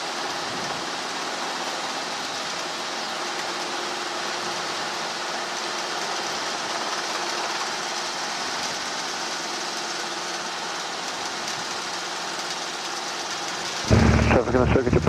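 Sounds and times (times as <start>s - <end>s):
helicopter engine and rotor noise: 0.0s - 15.0s.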